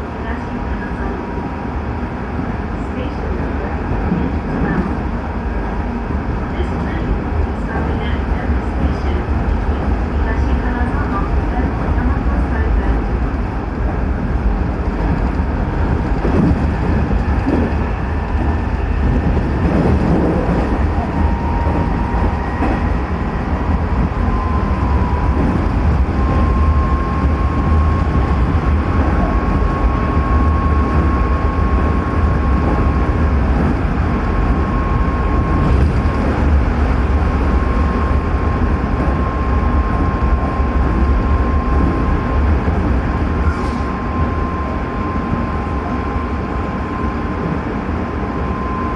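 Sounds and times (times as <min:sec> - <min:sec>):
train wheels rumbling on rail: 0:00.0 - 0:48.9
electric train drive whine: 0:14.5 - 0:48.9.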